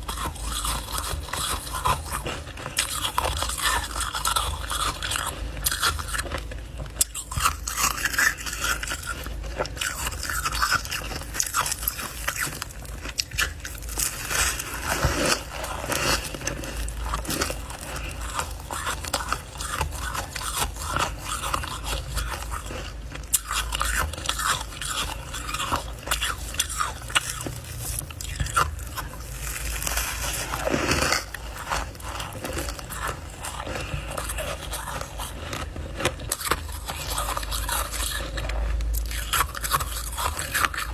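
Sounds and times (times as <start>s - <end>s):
chewing crunchy ice: 0.0s - 40.9s.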